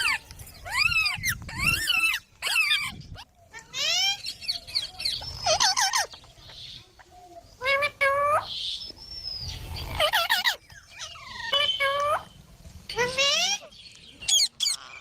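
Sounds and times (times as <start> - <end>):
parrot chirping: 0.0 - 6.2, 9.8 - 12.3, 13.0 - 15.0.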